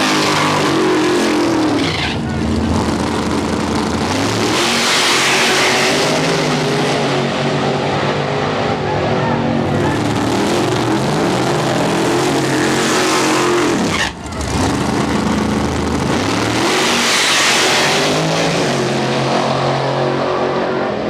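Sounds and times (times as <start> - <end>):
race engine revving: 0.0 - 21.0.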